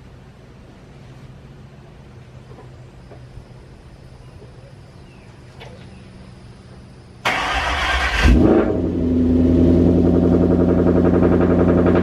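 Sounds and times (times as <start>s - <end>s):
car engine starting and running: 7.2s - 12.0s.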